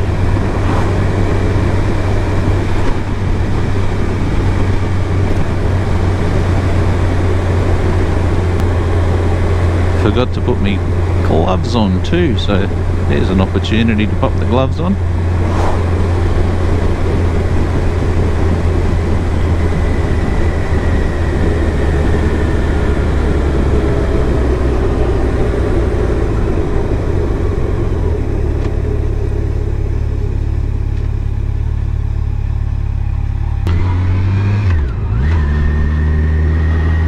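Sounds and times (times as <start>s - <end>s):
wind rush: 0.0s - 29.2s
motorcycle engine cruising: 0.0s - 37.0s.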